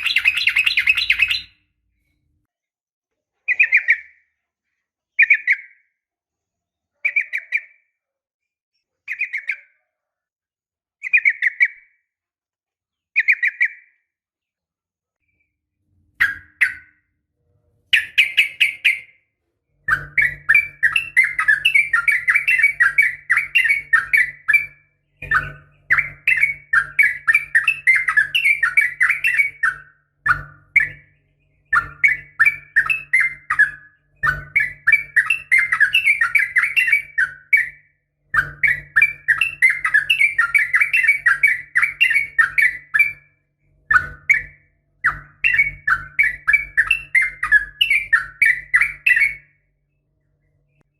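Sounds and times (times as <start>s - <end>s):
bird song bubbling whistles: 0.0s - 1.6s, 16.2s - 17.1s, 19.9s - 43.3s, 43.9s - 49.6s.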